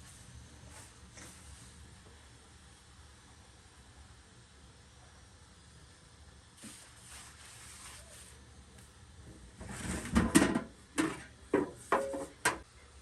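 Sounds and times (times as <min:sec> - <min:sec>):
soft rustle: 0:06.6 - 0:08.4
hard objects knocking and clattering: 0:10.1 - 0:12.6.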